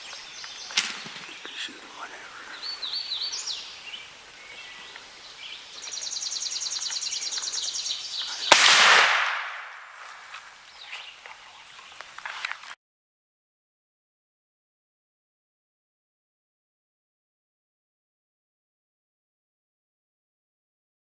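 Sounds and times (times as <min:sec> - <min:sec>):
birds singing: 0:00.0 - 0:12.6
shotgun shot: 0:08.4 - 0:10.0.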